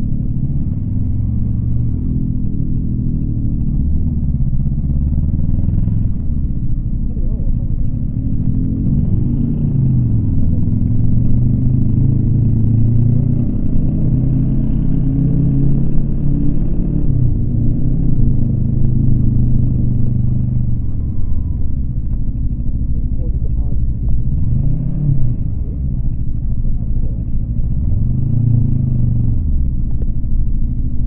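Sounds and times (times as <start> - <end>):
motorcycle engine running: 0.0 - 31.0
wind and road rumble: 0.0 - 31.0.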